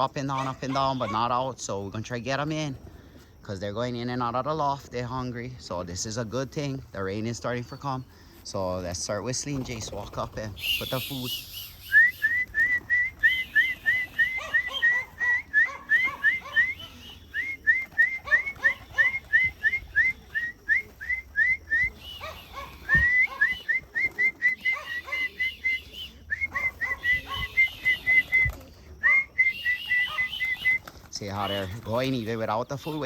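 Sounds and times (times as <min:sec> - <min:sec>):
person whistling rising notes: 0:10.6 - 0:18.3.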